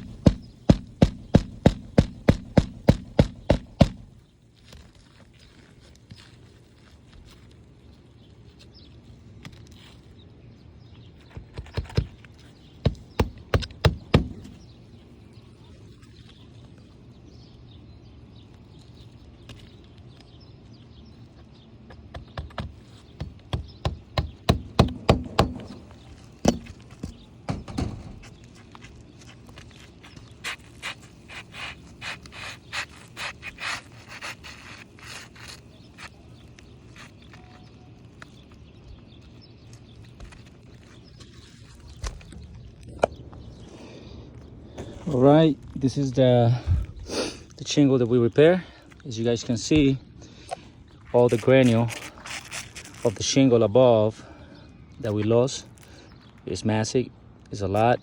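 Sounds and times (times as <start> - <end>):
hammer striking nails: 0.0 - 4.2, 12.9 - 14.6, 22.1 - 28.2.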